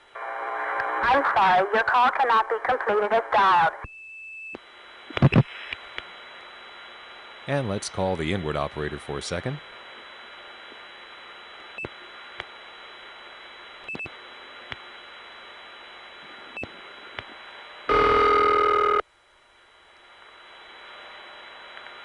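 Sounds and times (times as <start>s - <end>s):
telephone line hiss: 17.8s - 19.0s
buzzy ringback tone: 17.9s - 19.0s.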